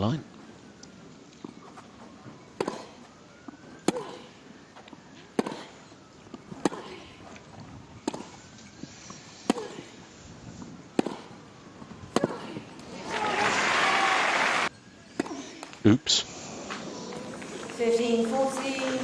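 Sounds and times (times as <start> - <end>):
tennis rackets hitting ball: 1.4 - 7.4, 8.0 - 8.4, 9.4 - 9.9, 10.9 - 13.7, 15.0 - 15.8.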